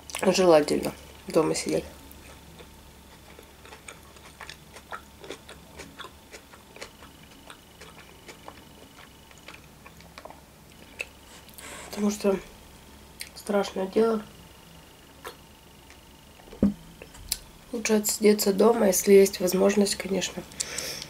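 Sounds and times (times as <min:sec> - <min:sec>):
person chewing with mouth closed: 0:02.1 - 0:11.7, 0:15.2 - 0:16.0.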